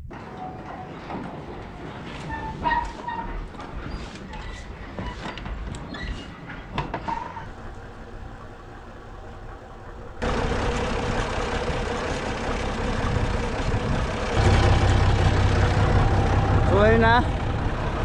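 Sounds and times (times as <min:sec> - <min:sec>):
engine running steadily: 0:07.6 - 0:18.0.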